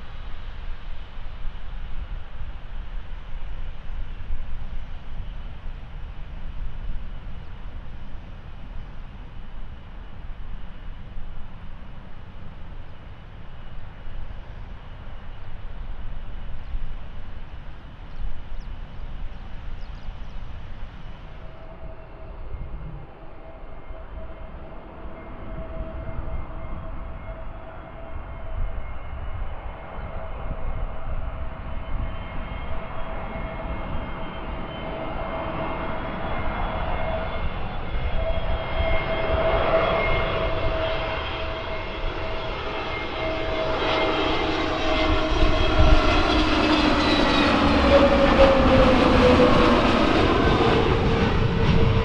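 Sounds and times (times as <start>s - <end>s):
jet engine whine: 0.0s - 52.0s
jet engines rumbling: 0.0s - 52.0s.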